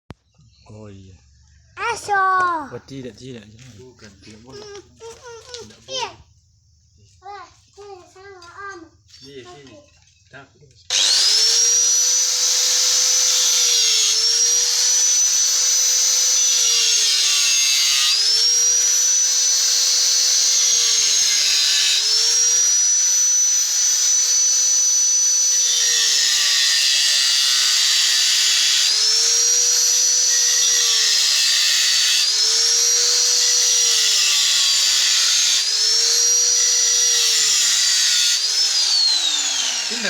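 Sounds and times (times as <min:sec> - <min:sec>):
power tool whining on metal: 0:10.9 - 0:40.0.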